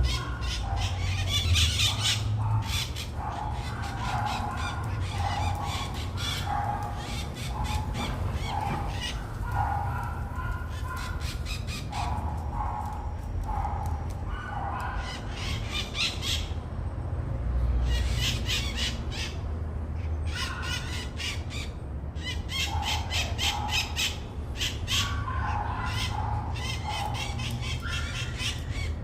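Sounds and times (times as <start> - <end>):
parrots squawking: 0.0 - 12.0, 17.8 - 19.4, 20.3 - 29.0.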